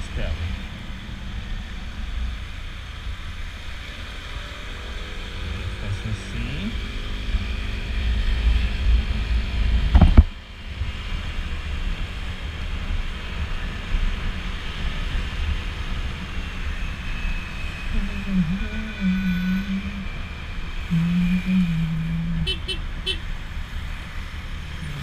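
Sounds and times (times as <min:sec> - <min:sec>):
road noise: 0:00.0 - 0:25.0
wind buffeting microphone: 0:07.4 - 0:11.2
short wavering low tone: 0:17.9 - 0:20.3, 0:20.9 - 0:22.5.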